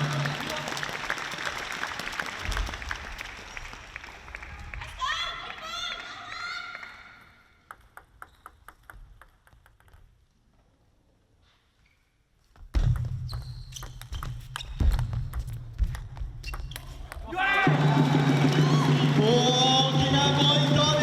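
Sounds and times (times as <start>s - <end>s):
table tennis ball bouncing: 7.6s - 10.1s, 12.8s - 17.3s.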